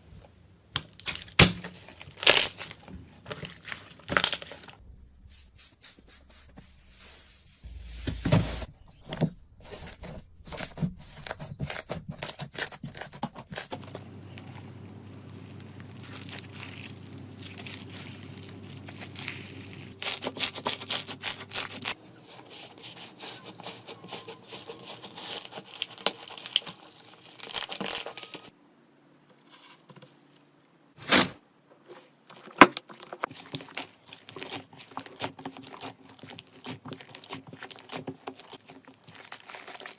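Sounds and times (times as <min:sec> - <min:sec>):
slime crackling when squeezed: 0:13.8 - 0:22.0.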